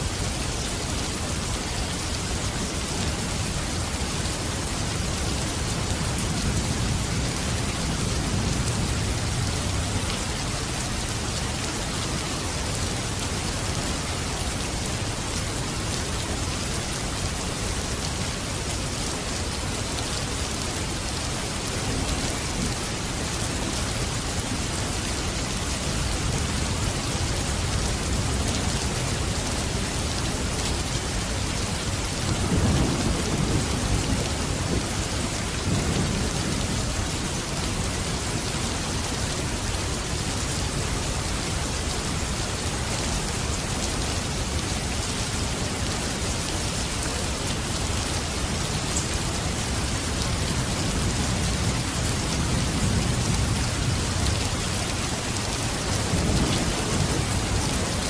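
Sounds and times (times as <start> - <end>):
heavy rain falling: 0.0 - 58.0
low rumble of thunder: 32.1 - 37.8.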